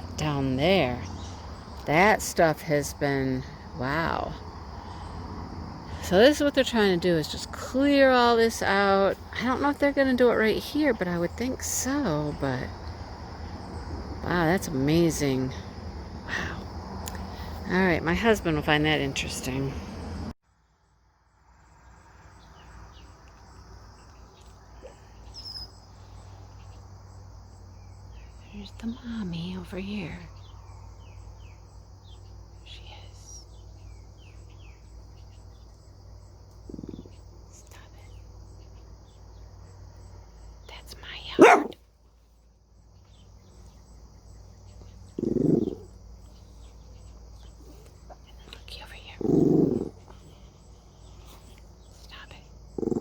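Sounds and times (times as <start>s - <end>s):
insects chirring: 0.0s - 53.0s
faint bird chirps: 22.0s - 26.9s.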